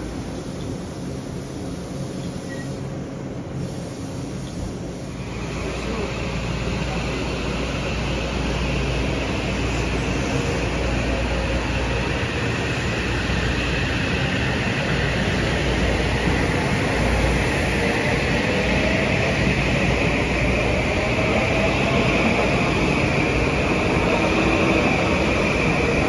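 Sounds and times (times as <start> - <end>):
train rolling past: 0.0 - 26.0.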